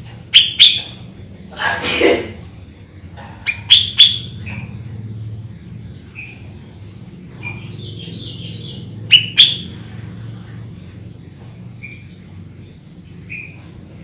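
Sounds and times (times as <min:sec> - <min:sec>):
faint low hum: 0:00.0 - 0:14.0
bulbul chirping: 0:00.2 - 0:01.0, 0:03.5 - 0:04.7, 0:07.4 - 0:09.8.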